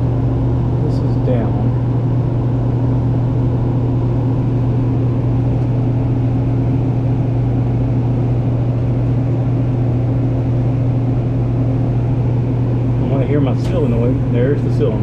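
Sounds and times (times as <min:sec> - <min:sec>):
fan motors humming: 0:00.0 - 0:15.0
air noise: 0:12.1 - 0:15.0.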